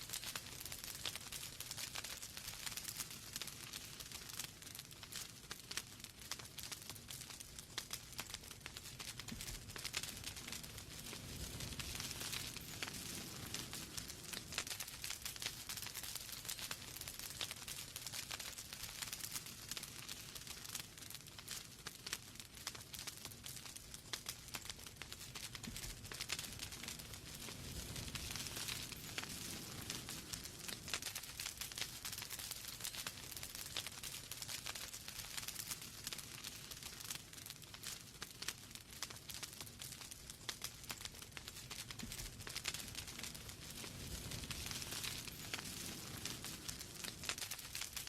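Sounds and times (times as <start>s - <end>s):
wood fire crackling: 0.0s - 48.0s.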